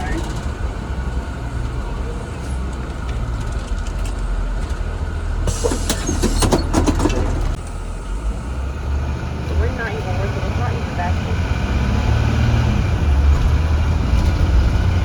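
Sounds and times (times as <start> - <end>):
rattling: 0.0 - 7.6
bus engine and road rumble: 0.0 - 15.0.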